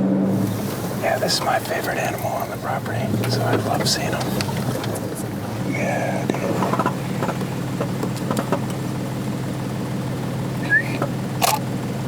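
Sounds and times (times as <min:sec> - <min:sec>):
vehicle engine humming: 0:00.0 - 0:12.0
sharp click: 0:10.8 - 0:11.6.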